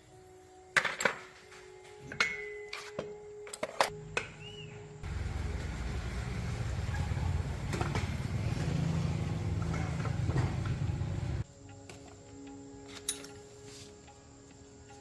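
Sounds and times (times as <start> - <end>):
small car engine running: 5.0 - 11.4.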